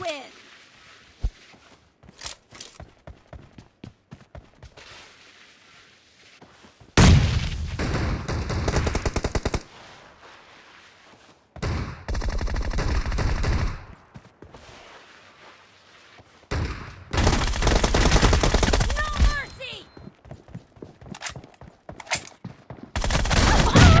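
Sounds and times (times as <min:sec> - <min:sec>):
video game automatic gunfire: 0:17.1 - 0:19.3, 0:23.0 - 0:24.0.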